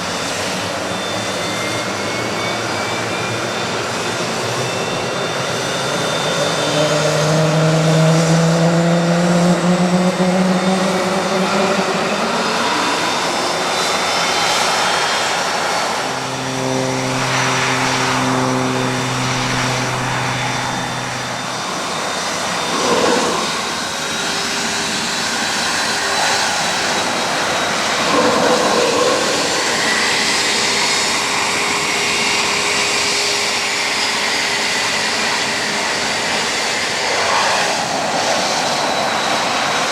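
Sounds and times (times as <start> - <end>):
jet engines whining: 0.0 - 39.9
low hum: 4.4 - 24.0.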